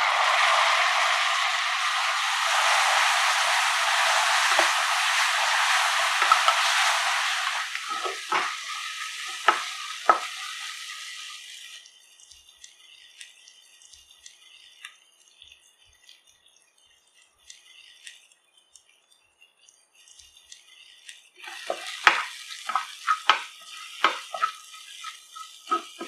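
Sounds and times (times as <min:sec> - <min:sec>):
food sizzling in hot oil: 0:00.0 - 0:16.1, 0:19.9 - 0:26.0
spoon knocking against pan: 0:06.2 - 0:06.9.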